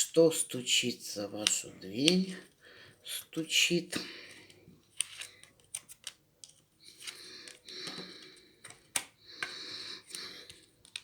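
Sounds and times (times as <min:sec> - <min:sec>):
cards rustling while shuffled: 0:04.2 - 0:11.0
cards snapping clicks: 0:08.6 - 0:09.6.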